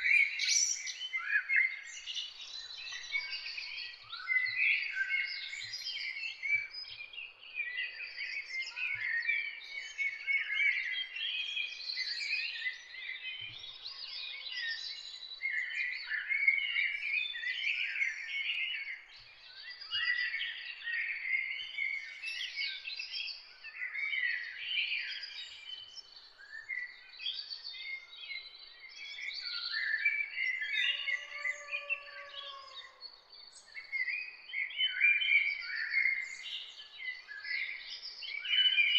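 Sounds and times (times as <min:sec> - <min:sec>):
songbirds chirping: 0:00.0 - 0:38.9
lower longer bird call: 0:30.7 - 0:33.0.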